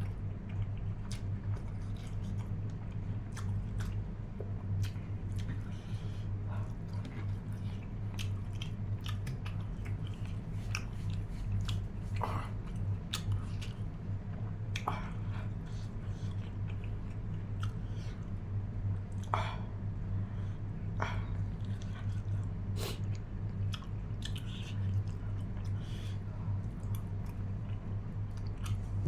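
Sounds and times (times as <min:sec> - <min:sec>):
person chewing food: 0:00.0 - 0:18.4, 0:21.0 - 0:29.0
steady low hum: 0:00.0 - 0:29.0.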